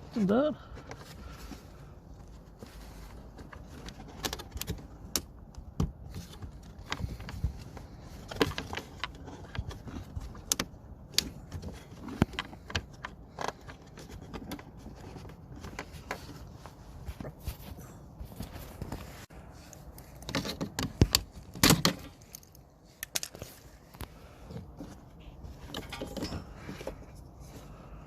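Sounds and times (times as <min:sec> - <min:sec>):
small parts clicking and rattling: 0:02.9 - 0:16.4, 0:19.7 - 0:27.2.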